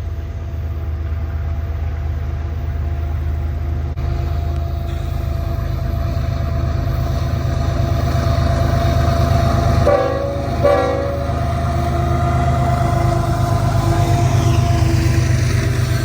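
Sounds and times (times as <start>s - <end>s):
freight train rumbling: 0.0s - 16.0s
train horn toots: 9.8s - 11.6s.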